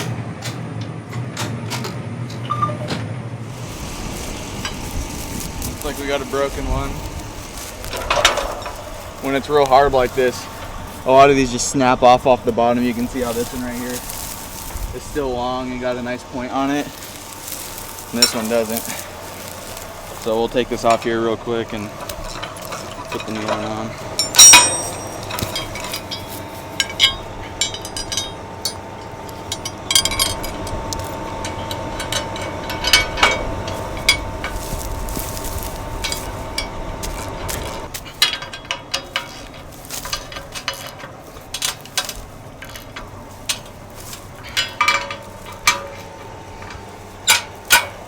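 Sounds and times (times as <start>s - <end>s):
steady hum: 3.1s - 48.0s
hand tools knocking on metal: 5.8s - 48.0s.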